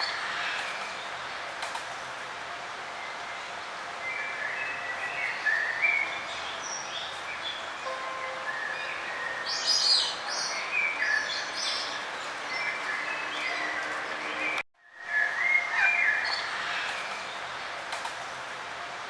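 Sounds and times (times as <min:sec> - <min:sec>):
steady outdoor hiss: 0:00.0 - 0:19.0
songbirds chirping and singing: 0:04.0 - 0:17.5.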